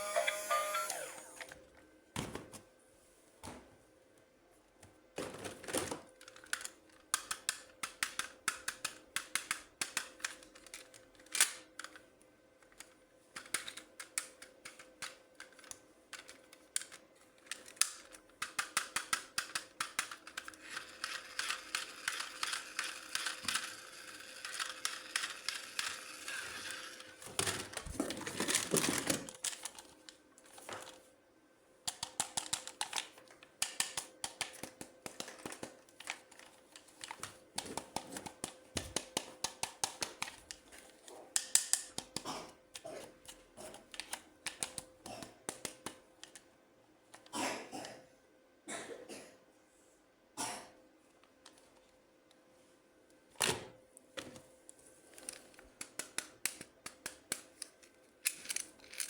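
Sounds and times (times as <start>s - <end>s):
plastic toy parts clicking: 6.2s - 12.0s, 12.6s - 27.8s, 31.9s - 40.6s, 41.4s - 46.4s, 55.2s - 59.0s.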